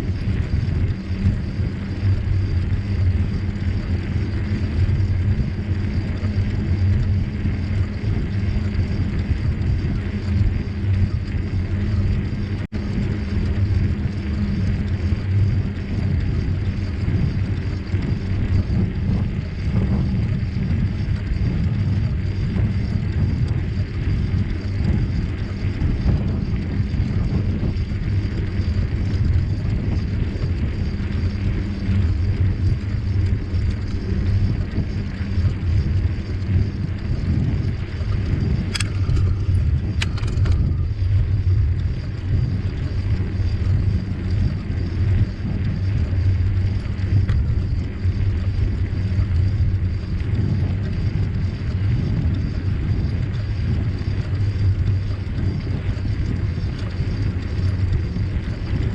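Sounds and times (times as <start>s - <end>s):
wind buffeting microphone: 0.0s - 58.9s
sharp clicks: 38.7s - 40.7s.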